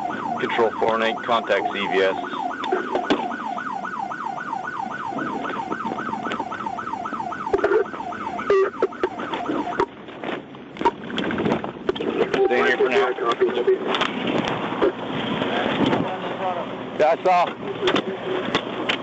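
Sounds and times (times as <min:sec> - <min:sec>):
police siren yelping: 0:00.0 - 0:09.9, 0:12.2 - 0:13.8.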